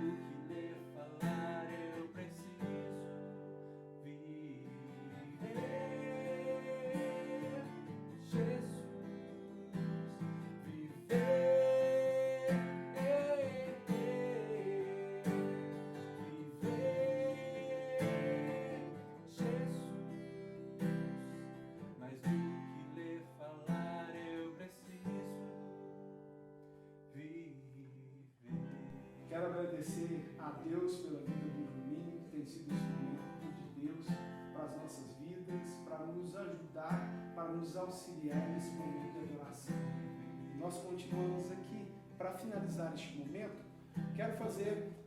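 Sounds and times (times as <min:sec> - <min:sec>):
acoustic guitar strumming: 0:00.0 - 0:27.2, 0:28.5 - 0:45.0
person singing: 0:04.1 - 0:20.6.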